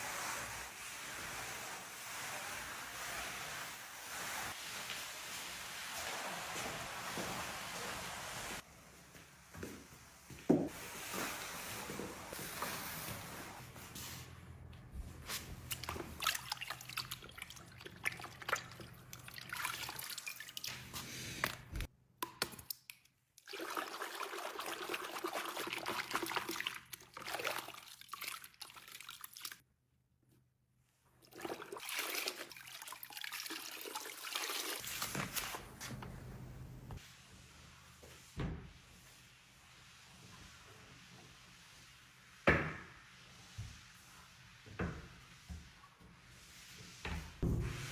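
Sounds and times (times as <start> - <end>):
pouring into containers: 23.4 - 29.6.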